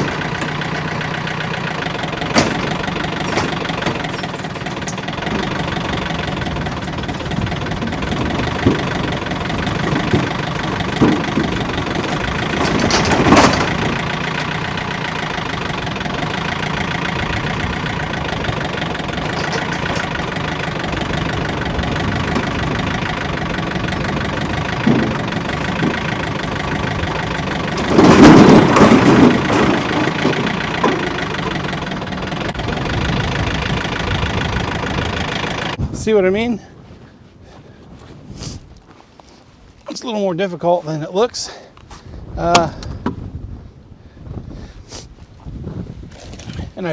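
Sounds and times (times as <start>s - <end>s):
firewood tumbling: 0.0s - 35.7s
engine running: 0.0s - 35.8s.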